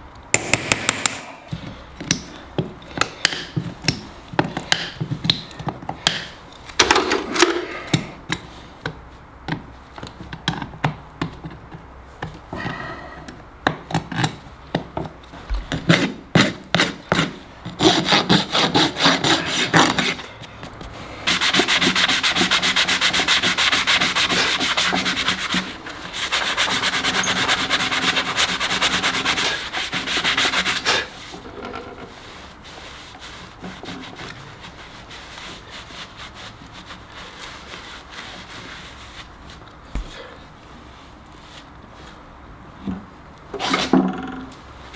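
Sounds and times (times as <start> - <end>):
hoof being filed: 15.9 - 20.2.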